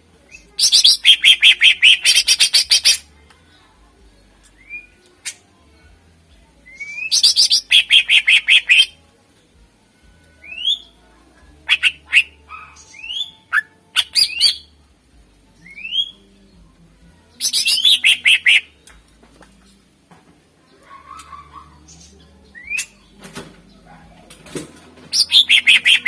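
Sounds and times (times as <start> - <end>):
bird singing whistled notes: 4.6 - 5.0, 6.6 - 9.0, 10.4 - 11.0, 11.7 - 14.7, 15.6 - 16.3, 17.4 - 18.7, 21.2 - 23.2, 25.1 - 26.0.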